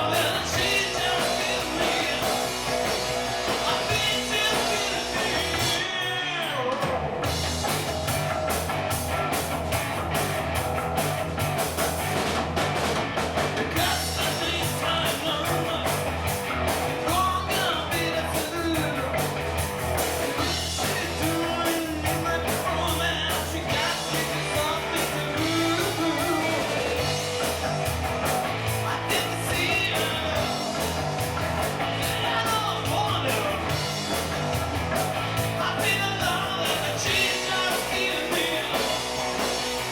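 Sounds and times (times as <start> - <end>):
person singing: 0.0 - 2.7, 3.4 - 7.0, 13.8 - 16.0, 20.4 - 27.5, 28.8 - 30.8, 32.0 - 33.9, 35.6 - 39.4
rock band playing: 0.0 - 39.9.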